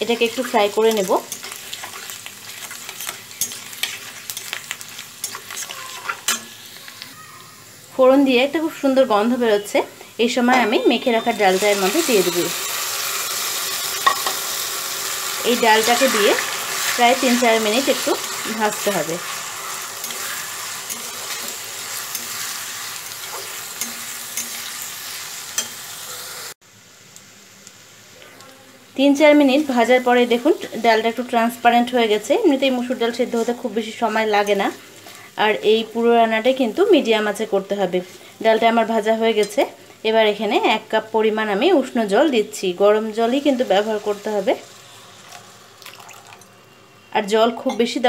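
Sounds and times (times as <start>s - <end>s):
garlic sizzling in hot oil: 0.0s - 48.0s
spatula scraping and clicking pan: 0.2s - 6.6s.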